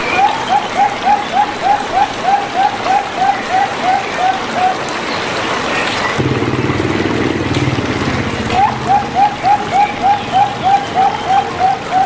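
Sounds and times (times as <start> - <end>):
dove cooing: 0.0 - 5.0, 6.2 - 12.0
dove call notes: 0.0 - 12.0.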